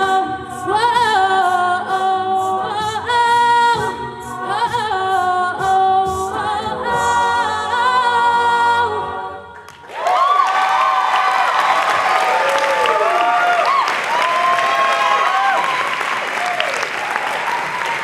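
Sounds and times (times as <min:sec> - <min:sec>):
a cappella group singing: 0:00.0 - 0:09.7
audience applause and cheering: 0:09.7 - 0:18.0.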